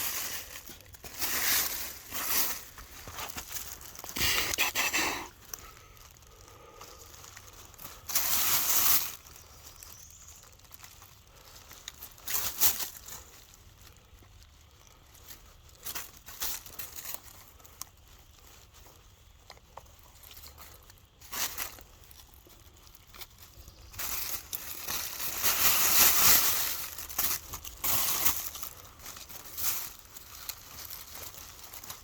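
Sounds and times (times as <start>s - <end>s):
leaves and dirt crunching: 0.0s - 32.0s.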